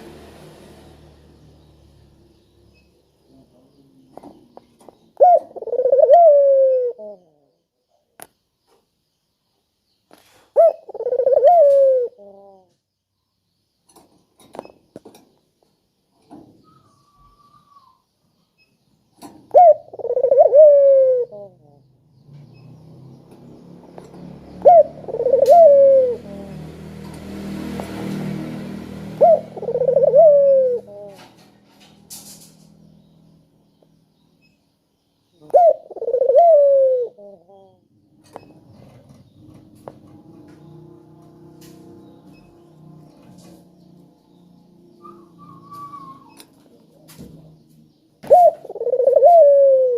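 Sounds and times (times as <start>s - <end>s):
dove rolling coo: 5.2s - 7.4s, 10.6s - 12.7s, 19.5s - 21.6s, 24.6s - 26.6s, 29.2s - 31.3s, 35.5s - 37.7s, 48.2s - 49.9s.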